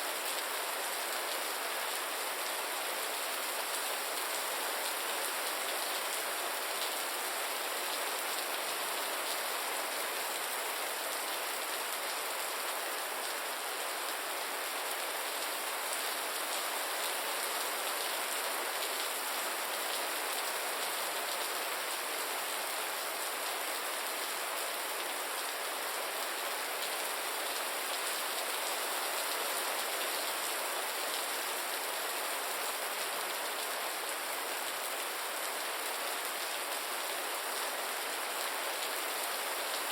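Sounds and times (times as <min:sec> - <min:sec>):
gentle steady rain: 0:00.0 - 0:39.9.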